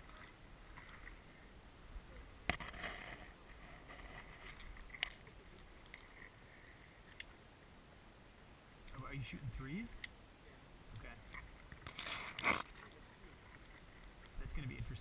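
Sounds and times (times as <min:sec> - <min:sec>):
faint outdoor rumble: 0:00.0 - 0:15.0.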